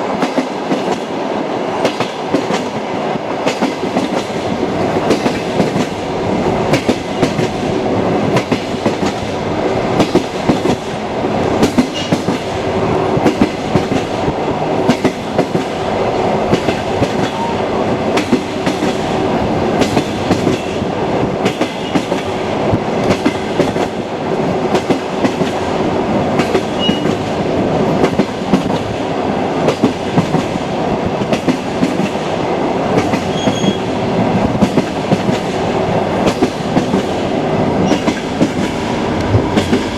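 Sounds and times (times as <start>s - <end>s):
train wheels clicking over rail joints: 1.8s - 39.9s.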